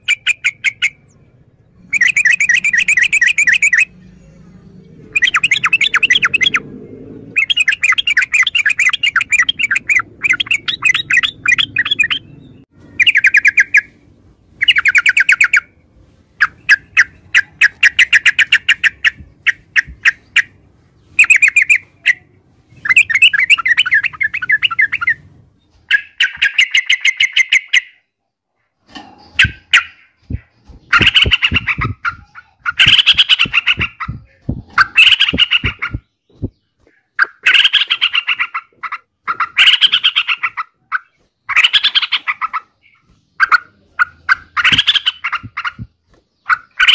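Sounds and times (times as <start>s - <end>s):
bird singing chattering notes: 0.0s - 14.0s, 16.4s - 28.0s, 29.2s - 46.9s.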